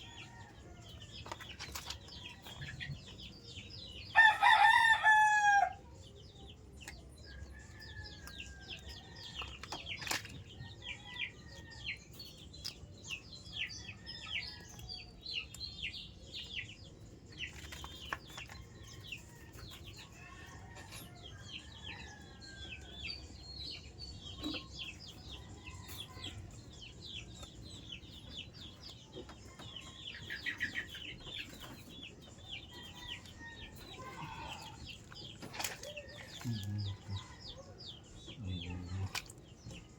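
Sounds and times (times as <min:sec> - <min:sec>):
chickens clucking and chirping: 0:00.0 - 0:39.9
small birds chirping: 0:00.0 - 0:39.9
rooster crowing: 0:04.1 - 0:05.8.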